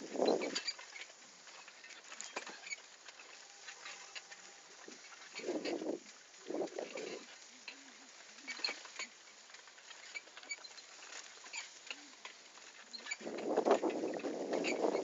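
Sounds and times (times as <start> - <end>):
bicycle rough rumble: 0.0 - 15.0.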